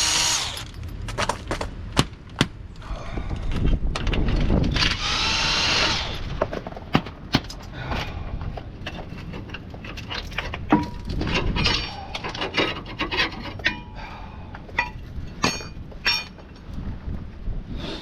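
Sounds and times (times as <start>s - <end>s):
metal tools clinking: 8.8s - 14.0s, 14.7s - 16.5s.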